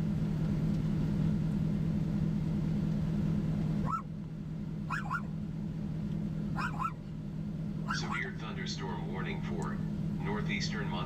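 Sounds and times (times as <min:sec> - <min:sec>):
vehicle engine humming: 0:00.0 - 0:11.0
animal call rising and falling: 0:03.8 - 0:04.1, 0:04.9 - 0:05.3, 0:06.6 - 0:07.0, 0:07.9 - 0:08.2.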